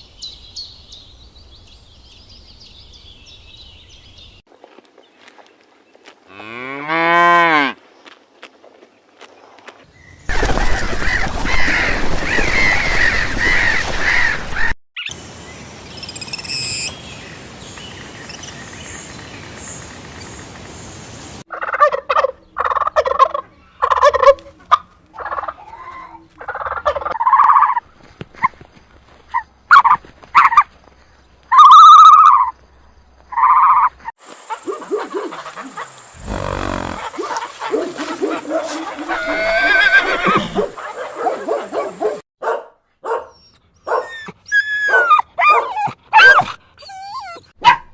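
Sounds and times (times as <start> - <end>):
poultry calling: 33.3 - 42.2.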